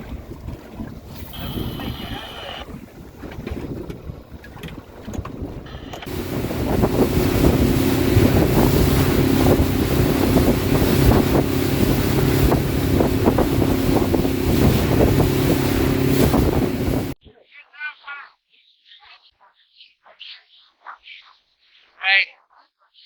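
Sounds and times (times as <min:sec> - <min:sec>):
boat motor running: 0:00.0 - 0:17.2
water rushing past hull: 0:00.0 - 0:17.2
wind buffeting microphone: 0:00.0 - 0:17.2.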